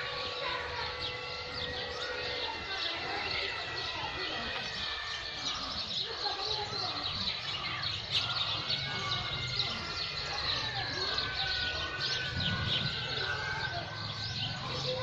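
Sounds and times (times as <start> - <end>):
small birds chirping: 0.0 - 15.0
low murmur: 7.0 - 15.0.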